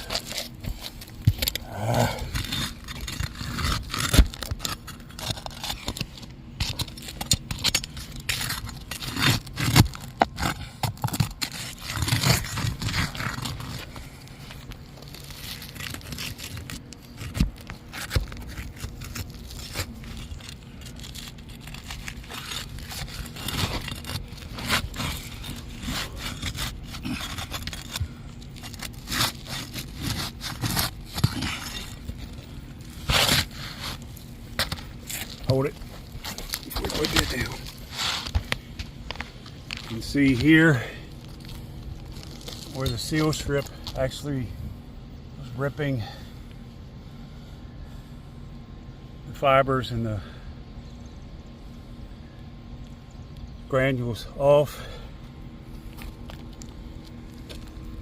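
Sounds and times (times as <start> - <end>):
roofing shingles scraping and tearing: 0.0 - 44.2.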